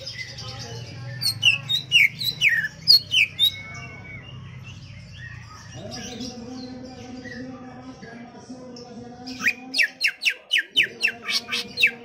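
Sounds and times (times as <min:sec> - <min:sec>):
bird singing whistled notes: 0:01.1 - 0:05.8, 0:09.4 - 0:12.0.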